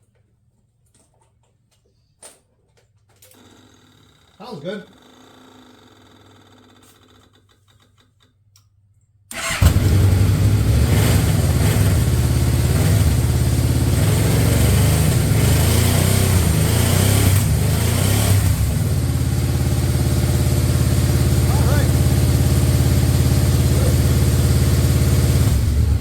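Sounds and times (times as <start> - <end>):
motorcycle engine starting: 9.3 - 26.0.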